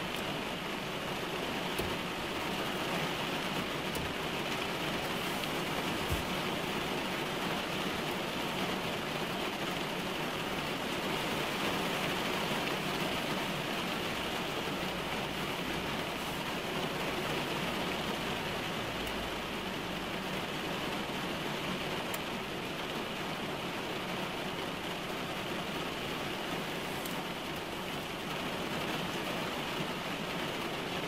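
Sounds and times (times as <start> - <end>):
raindrop taps: 0.0 - 8.3
heavy rain drumming on car roof: 0.0 - 31.0.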